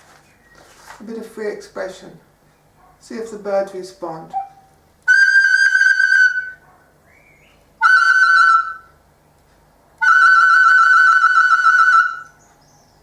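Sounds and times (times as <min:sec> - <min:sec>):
recorder playing high notes: 0:07.8 - 0:08.9, 0:10.0 - 0:12.3.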